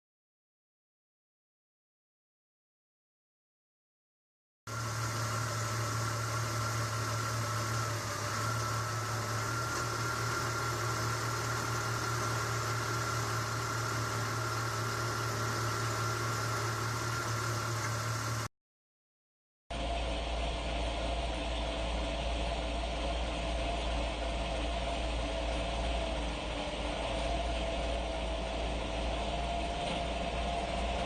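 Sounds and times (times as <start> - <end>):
car engine idling: 4.7 - 18.5, 20.0 - 31.0.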